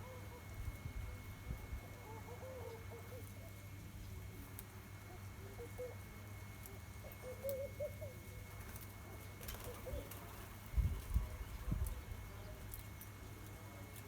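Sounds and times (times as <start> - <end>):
dove cooing: 0.0 - 3.7, 5.0 - 12.5.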